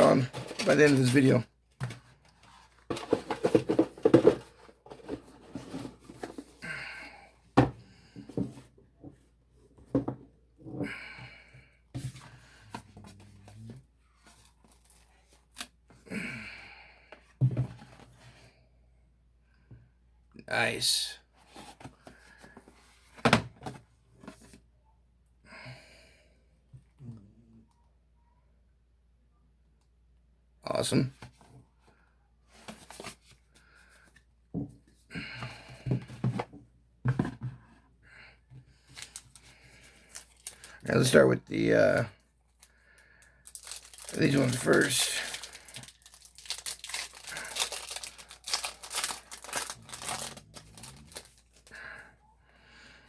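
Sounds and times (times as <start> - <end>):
packaging rustling and crinkling: 0.1 - 6.5, 38.9 - 42.0, 43.4 - 51.8.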